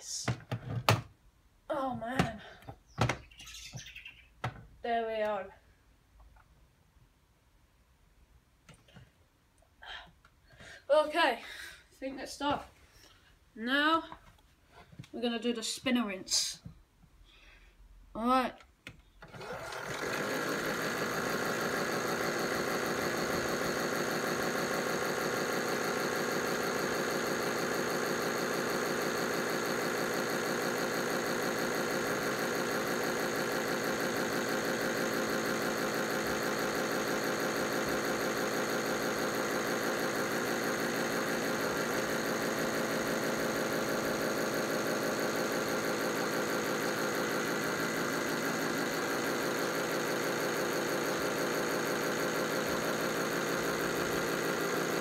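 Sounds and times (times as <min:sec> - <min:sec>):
toy washing machine whirring: 0:19.2 - 0:55.0.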